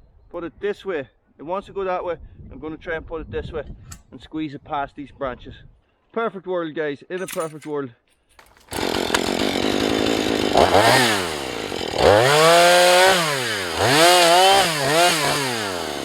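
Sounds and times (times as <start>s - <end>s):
chainsaw idling and revving: 8.4s - 16.0s.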